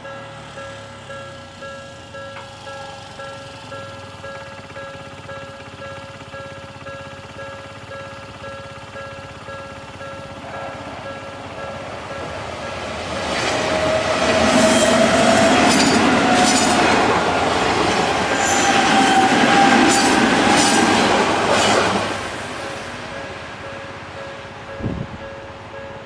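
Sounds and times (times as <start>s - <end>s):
level crossing warning bell: 0.0s - 21.4s, 22.7s - 26.0s
train motor whine: 0.0s - 25.9s
train wheels clacking over rail joints: 10.2s - 22.4s.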